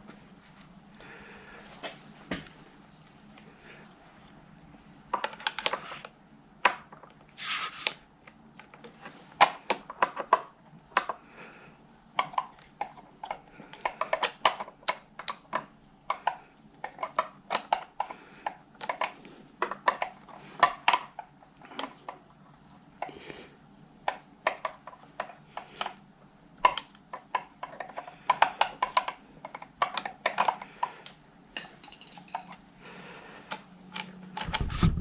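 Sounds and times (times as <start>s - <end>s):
hand tools clinking on metal: 31.6s - 32.6s.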